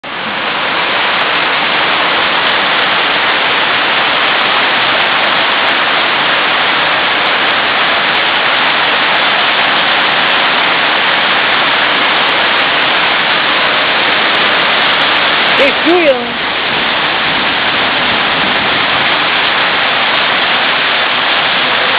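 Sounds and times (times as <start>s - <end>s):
torrential rain pouring: 0.0s - 21.9s.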